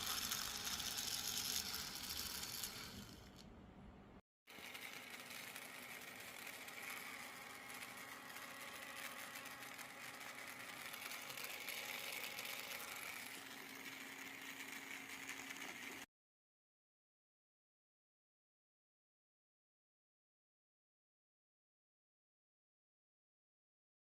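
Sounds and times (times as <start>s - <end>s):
gear motor whirring: 0.0s - 3.4s, 4.5s - 16.1s.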